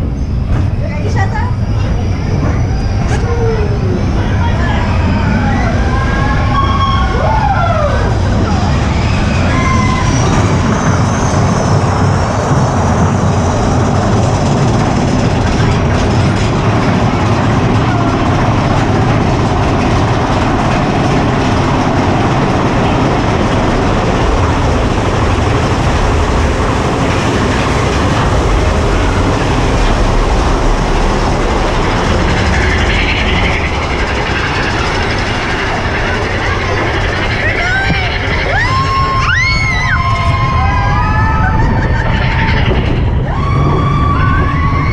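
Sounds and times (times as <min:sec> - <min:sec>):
roller coaster wheels clattering on rail: 0:00.0 - 0:44.9.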